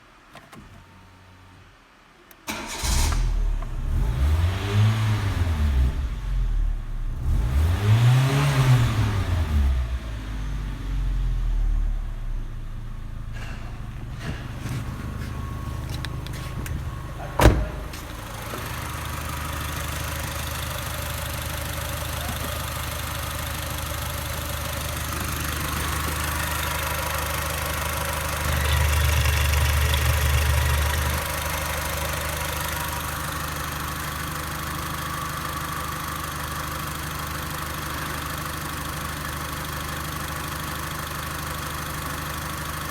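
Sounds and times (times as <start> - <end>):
car engine starting and idling: 2.4 - 42.9.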